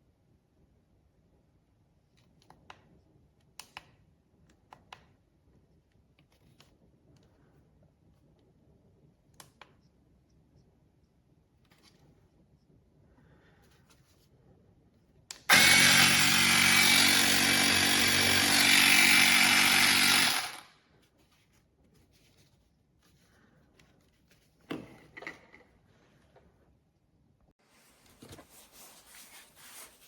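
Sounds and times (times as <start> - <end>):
small air compressor running: 15.5 - 20.7.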